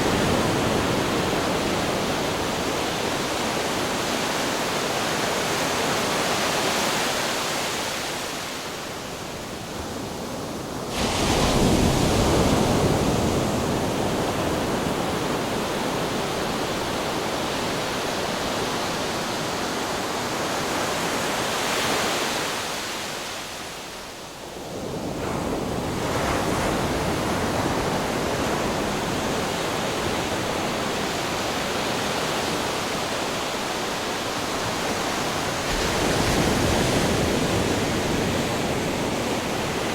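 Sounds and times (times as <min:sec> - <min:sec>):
ocean waves breaking on rocks: 0:25.4 - 0:39.9.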